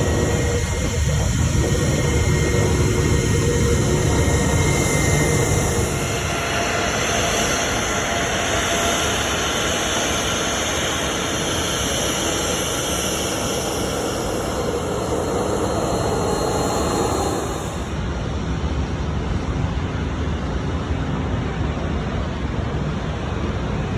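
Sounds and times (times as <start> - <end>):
jet engines roaring with whine: 0.0 - 23.9.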